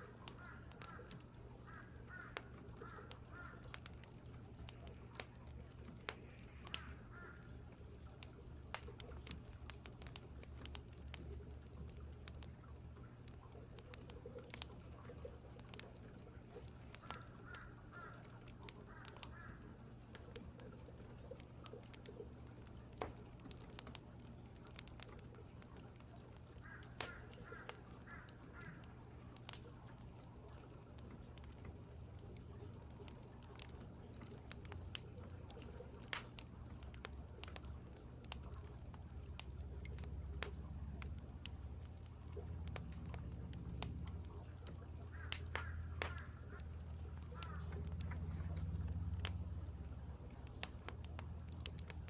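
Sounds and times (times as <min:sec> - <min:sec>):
low steady hum: 0:00.0 - 0:52.0
crows cawing: 0:00.1 - 0:03.8, 0:06.6 - 0:07.6, 0:17.0 - 0:19.8, 0:26.6 - 0:29.0, 0:45.1 - 0:47.9
sharp clicks: 0:00.1 - 0:12.6, 0:13.3 - 0:49.7.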